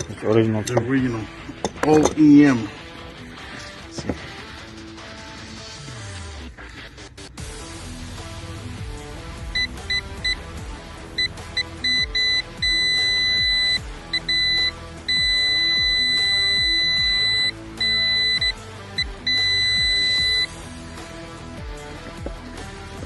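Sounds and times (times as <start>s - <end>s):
background music: 0.0s - 23.0s
high electronic beeping: 11.2s - 20.5s.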